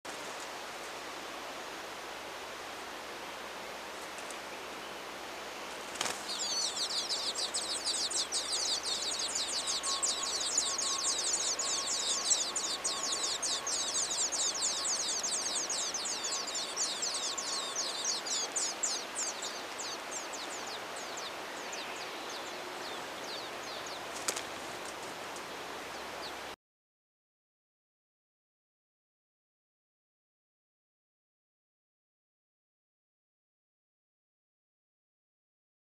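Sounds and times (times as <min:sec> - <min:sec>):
nestlings cheeping: 0:06.3 - 0:18.0.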